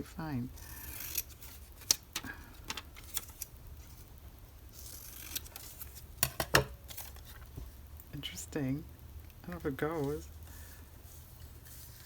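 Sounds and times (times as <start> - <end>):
magazine paper rustling: 6.8 - 7.6, 9.6 - 12.0.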